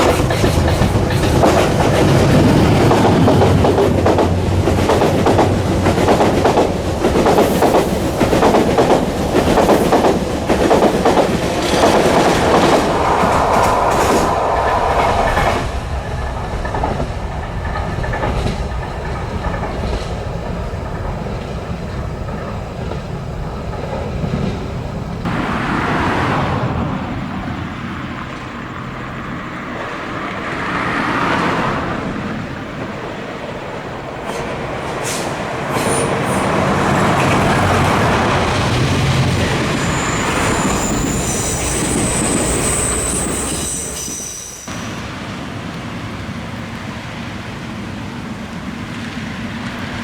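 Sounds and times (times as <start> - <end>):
train wheels rumbling and clattering: 0.0 - 50.0
high wheel squeal: 35.0 - 38.0, 39.3 - 45.0.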